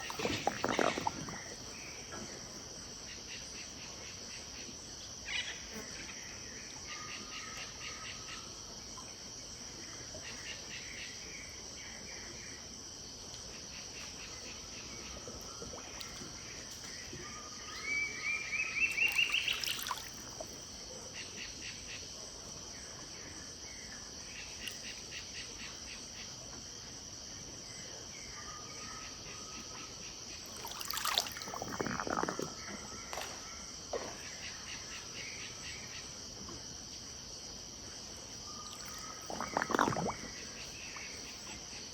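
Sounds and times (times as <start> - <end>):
high insect buzz: 0.0 - 1.8, 18.9 - 20.4, 30.5 - 33.2.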